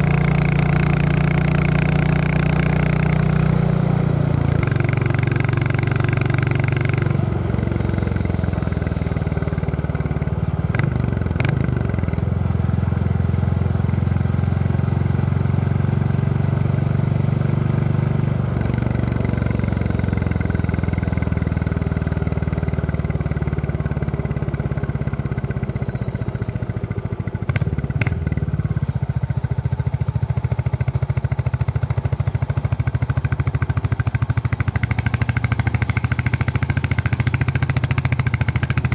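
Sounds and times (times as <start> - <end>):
motorcycle engine thumping: 4.4 - 8.4, 27.4 - 28.9.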